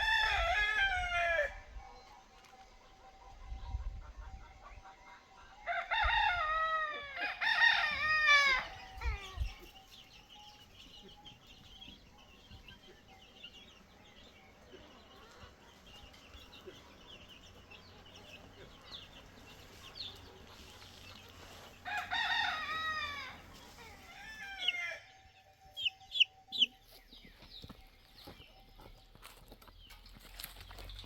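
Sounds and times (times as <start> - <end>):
rooster crowing: 0.0 - 1.7, 5.6 - 9.4, 21.8 - 25.2.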